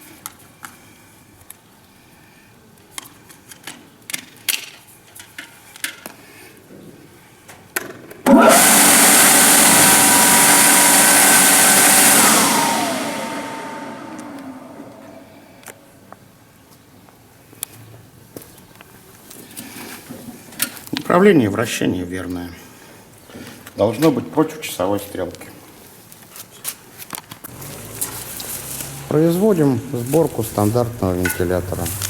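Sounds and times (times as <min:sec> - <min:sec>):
electric fan rushing and whining: 0:08.3 - 0:15.6.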